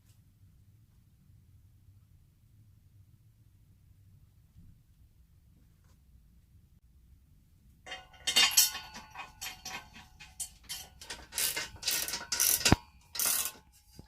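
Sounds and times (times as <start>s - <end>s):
metal tools clinking and scraping: 7.9s - 14.0s.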